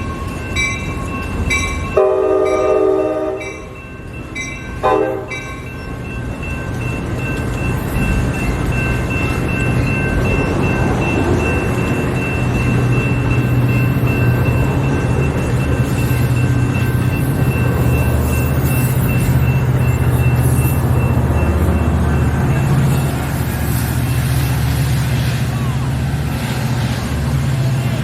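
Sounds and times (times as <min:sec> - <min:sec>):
bell ringing: 0:00.0 - 0:23.4
train rumbling past: 0:00.0 - 0:28.0
train horn blasts: 0:02.0 - 0:03.7, 0:04.8 - 0:05.4.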